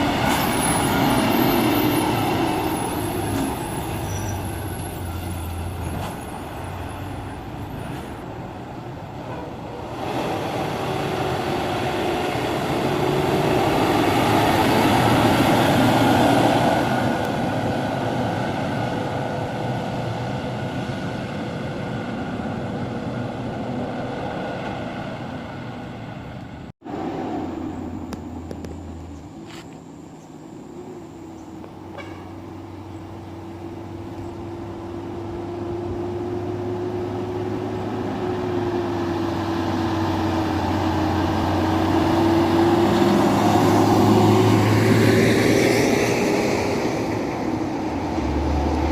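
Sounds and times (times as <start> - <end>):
dump truck driving past: 0.0 - 29.4, 31.8 - 48.9.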